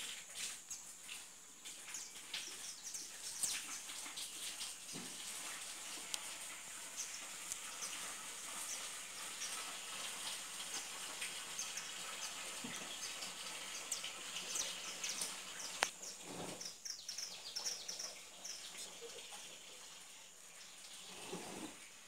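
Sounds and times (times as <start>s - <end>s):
background hiss: 0.0s - 22.0s
small birds chirping: 0.6s - 4.5s, 5.5s - 9.9s, 10.6s - 19.6s.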